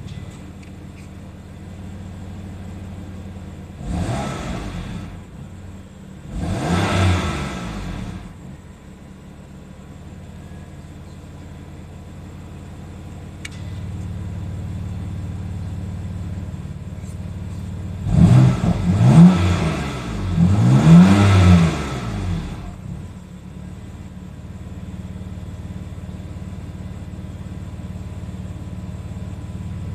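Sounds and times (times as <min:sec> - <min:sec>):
car engine idling: 0:00.0 - 0:29.9
car engine revving: 0:03.7 - 0:05.6, 0:06.2 - 0:08.5, 0:18.0 - 0:23.1.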